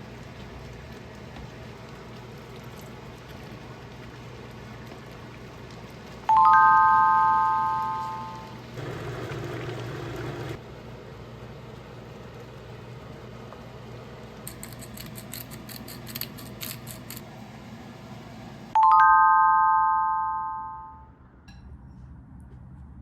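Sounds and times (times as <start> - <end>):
bell-like chime: 18.8 - 21.0.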